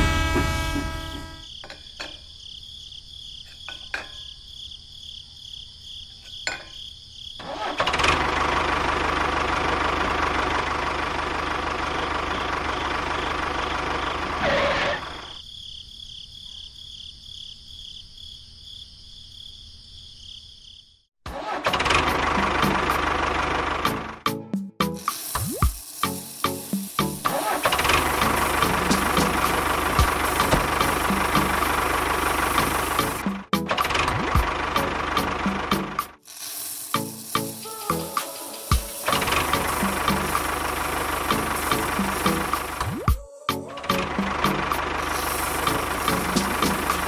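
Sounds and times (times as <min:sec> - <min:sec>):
rough running sound: 0:36.2 - 0:42.8.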